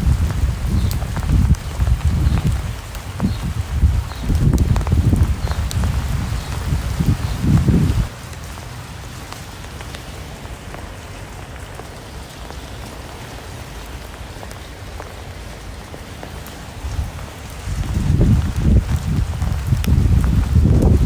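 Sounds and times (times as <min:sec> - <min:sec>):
wind buffeting the microphone: 0:00.0 - 0:08.2, 0:16.0 - 0:21.0
steady rain falling: 0:00.0 - 0:21.0.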